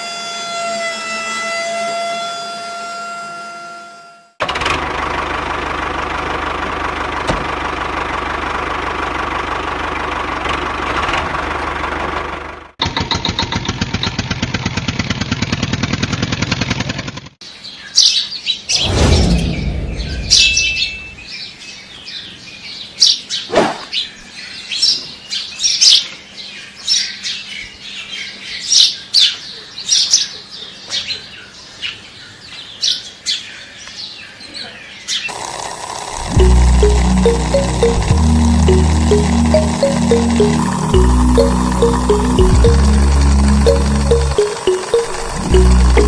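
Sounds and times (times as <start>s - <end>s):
small engine running: 4.4s - 17.4s, 35.3s - 46.0s
low rumble: 18.8s - 21.2s
music: 36.2s - 46.0s.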